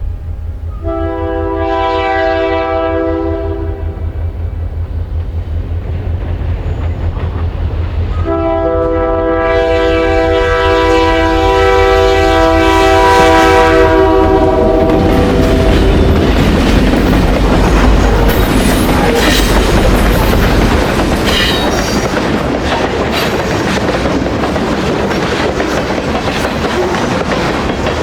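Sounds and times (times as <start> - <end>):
locomotive horn blast: 0.1 - 4.2, 8.1 - 16.4.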